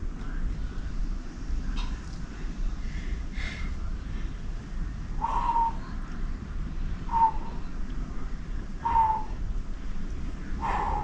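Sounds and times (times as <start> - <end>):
low outdoor rumble: 0.0 - 11.0
bird calling: 8.8 - 9.4.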